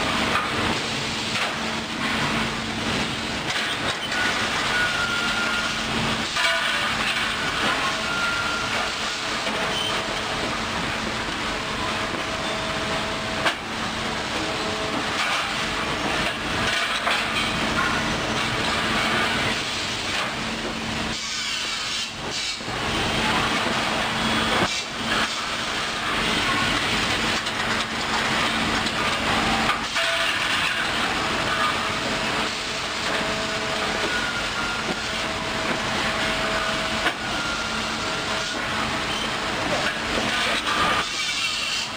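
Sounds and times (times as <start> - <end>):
machinery hum: 0.0 - 41.9.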